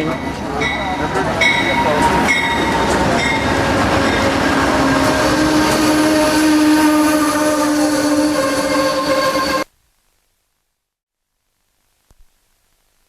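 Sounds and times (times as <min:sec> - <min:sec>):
locomotive bell ringing: 0:00.0 - 0:06.4
train rumble: 0:00.0 - 0:09.7.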